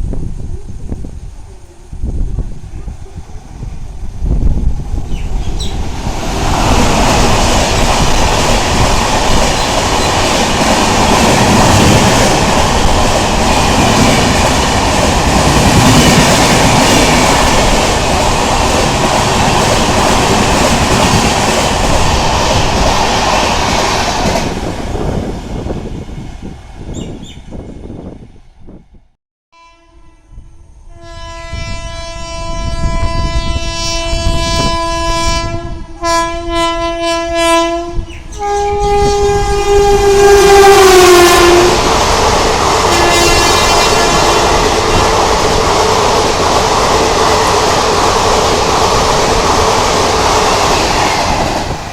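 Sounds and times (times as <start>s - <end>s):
train passing at high speed: 0.0s - 29.2s, 30.3s - 51.9s
train horn blast: 29.5s - 41.8s, 42.9s - 44.9s.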